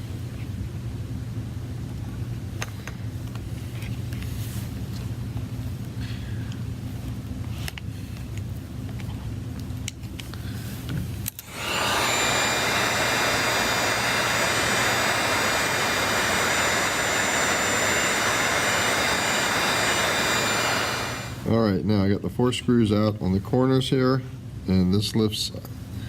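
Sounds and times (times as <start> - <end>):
blower or fan rushing: 10.5 - 22.0.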